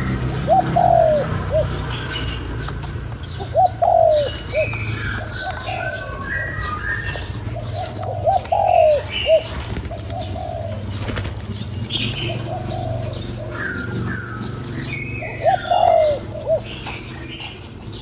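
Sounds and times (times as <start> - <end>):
dove cooing: 0.0 - 18.0
small birds chirping: 0.0 - 18.0.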